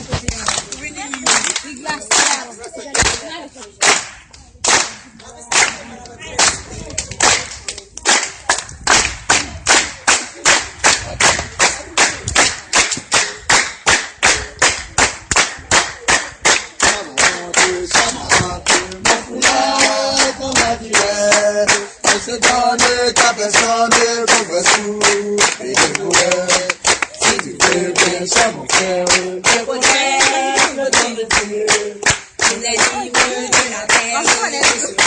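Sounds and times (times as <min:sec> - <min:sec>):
hands clapping in rhythm: 0:00.2 - 0:35.0
singing: 0:16.4 - 0:35.0.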